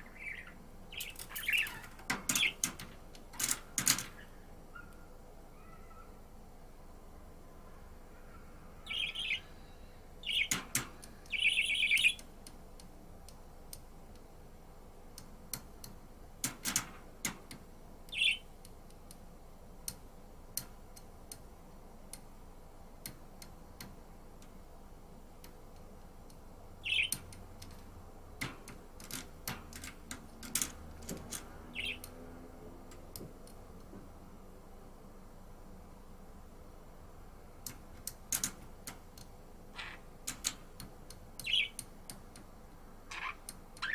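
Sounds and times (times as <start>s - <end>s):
budgerigar chirping: 26.8s - 27.2s, 39.8s - 40.0s, 41.4s - 41.8s, 43.1s - 43.9s
sharp clicks and taps: 37.6s - 39.3s.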